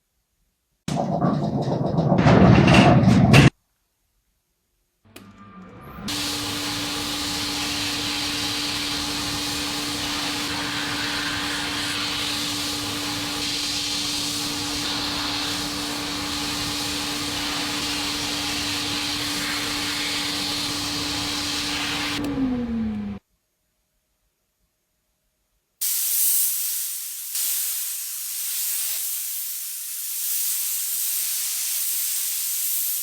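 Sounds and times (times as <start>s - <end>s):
motor hum: 5.1s - 23.2s
paint spray gun hissing: 6.1s - 22.2s, 25.8s - 33.0s.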